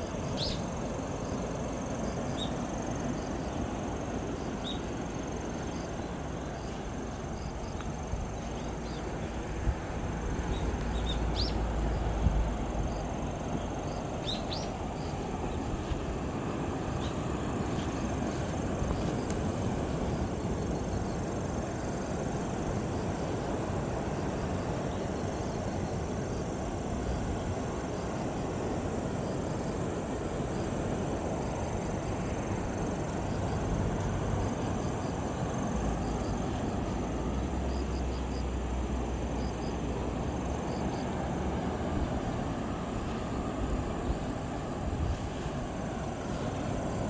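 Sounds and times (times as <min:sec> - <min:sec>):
sea waves: 0:00.0 - 0:47.0
wind: 0:00.0 - 0:47.0.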